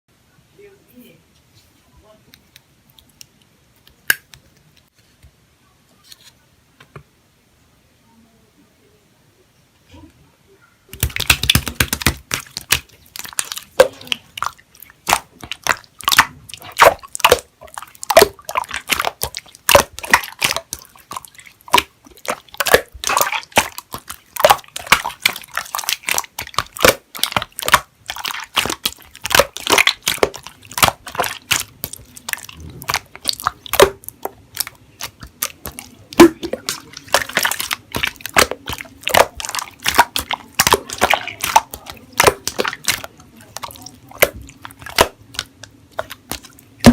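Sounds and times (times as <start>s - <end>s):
slime squeezed by hand: 11.0s - 46.9s.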